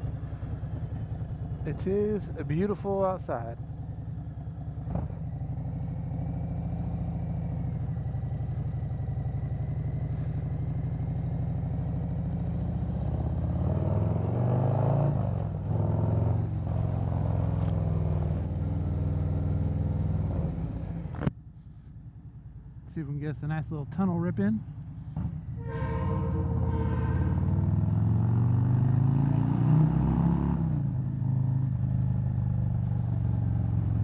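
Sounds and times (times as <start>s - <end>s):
motorcycle engine running: 0.0s - 14.3s, 30.8s - 34.0s.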